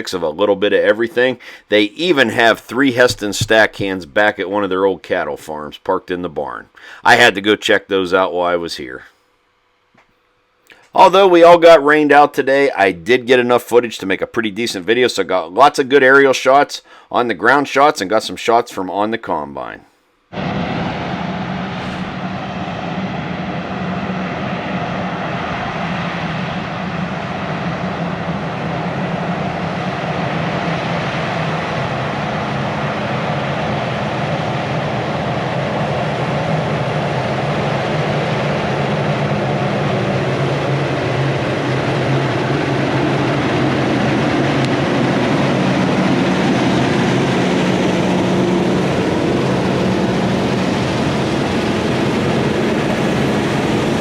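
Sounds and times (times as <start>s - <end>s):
heavy farm machinery running: 20.4s - 25.8s, 26.9s - 54.0s
diesel engine hum: 20.4s - 54.0s.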